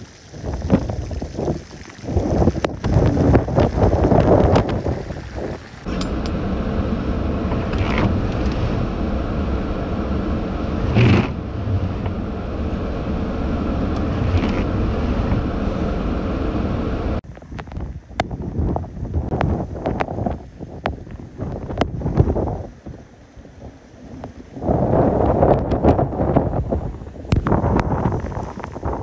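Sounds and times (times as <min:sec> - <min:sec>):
gale-force wind: 0:00.0 - 0:29.0
heavy surf: 0:04.6 - 0:17.3
waves crashing: 0:05.8 - 0:17.2
faint hum: 0:05.9 - 0:17.2.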